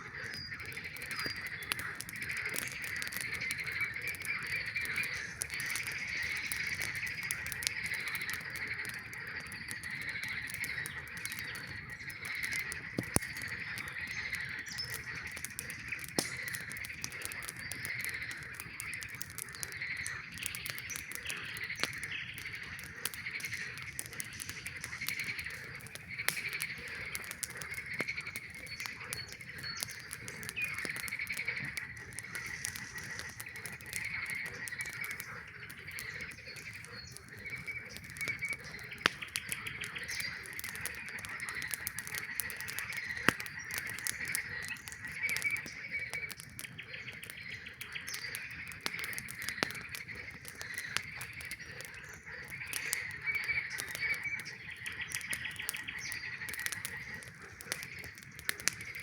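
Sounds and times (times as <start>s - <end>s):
campfire crackling pops: 0.0s - 59.0s
frogs calling: 0.0s - 59.0s.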